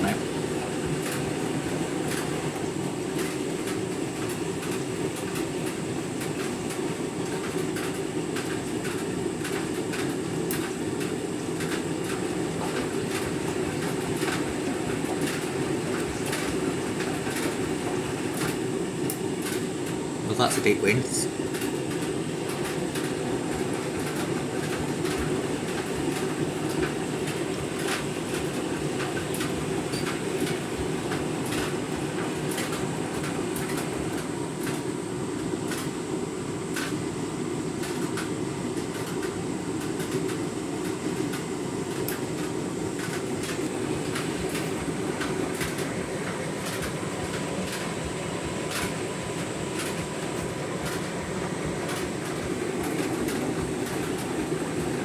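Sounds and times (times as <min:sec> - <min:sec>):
washing machine drum rumbling: 0:38.8 - 0:55.0.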